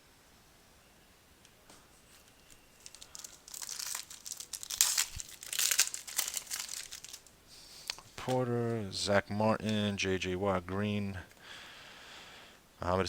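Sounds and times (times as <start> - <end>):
foil wrapper tearing and crinkling: 2.2 - 7.3.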